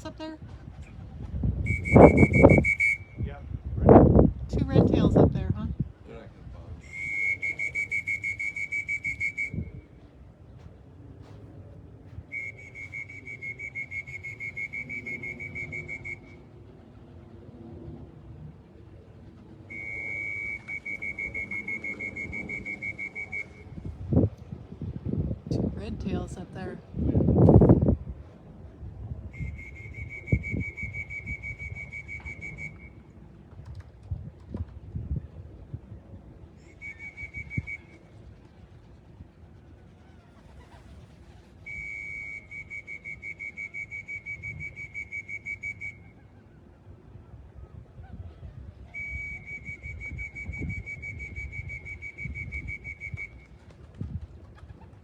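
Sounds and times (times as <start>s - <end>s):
high-pitched whistle pulses: 1.7s - 3.3s, 6.8s - 9.8s, 12.2s - 16.4s, 19.7s - 23.7s, 29.3s - 33.0s, 36.6s - 38.0s, 41.7s - 46.1s, 48.9s - 53.4s.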